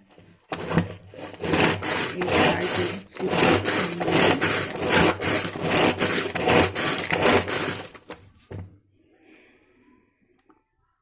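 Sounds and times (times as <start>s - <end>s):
manual food chopper whirring: 0.4s - 8.2s.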